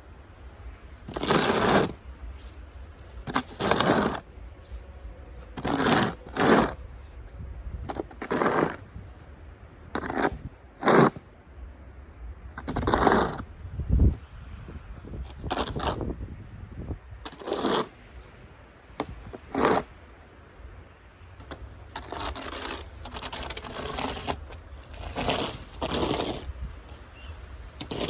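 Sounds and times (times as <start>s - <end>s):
snow shovel scraping: 1.0s - 7.1s, 7.8s - 8.8s, 10.0s - 11.2s, 12.6s - 13.4s, 15.3s - 16.1s, 17.3s - 18.0s, 19.0s - 19.9s, 21.4s - 28.0s.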